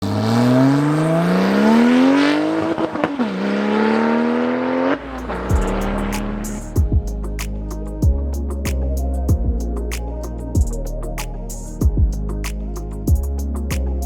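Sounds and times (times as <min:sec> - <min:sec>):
car engine accelerating hard: 0:00.0 - 0:06.8
music with deep bass thumps: 0:05.2 - 0:14.0.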